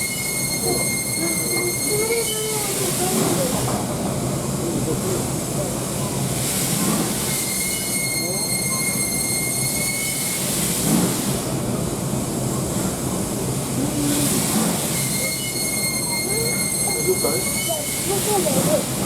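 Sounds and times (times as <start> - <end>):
high-pitched metallic squeal: 0.0 - 2.6, 7.5 - 10.4, 14.9 - 18.0
low train rumble: 0.0 - 19.0
steam hiss: 0.0 - 19.0.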